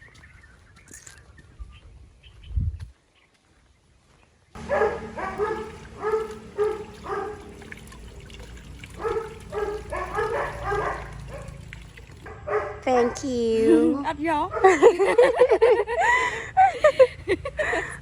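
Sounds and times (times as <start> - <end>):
dog barking: 4.6 - 8.2, 8.9 - 13.4, 14.4 - 15.0.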